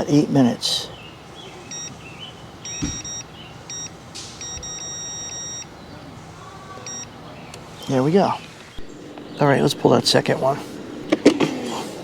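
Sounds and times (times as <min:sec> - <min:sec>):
oven control panel beeps: 0:01.7 - 0:01.9, 0:02.6 - 0:05.7, 0:06.8 - 0:07.1.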